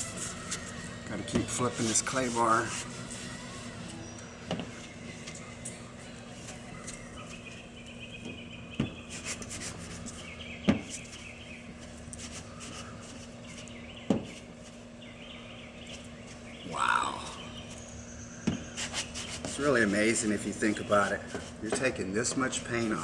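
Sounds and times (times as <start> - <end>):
clay bar scraping car paint: 1.5 - 3.5, 18.7 - 23.0.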